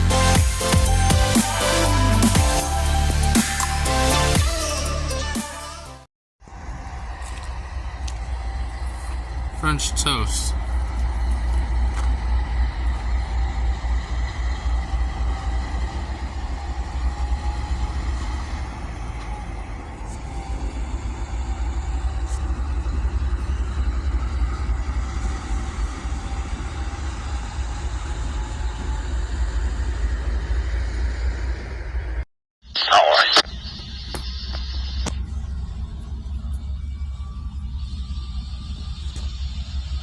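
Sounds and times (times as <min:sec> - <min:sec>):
train rumbling by: 0:06.4 - 0:32.2
faint steady tones: 0:32.8 - 0:40.0.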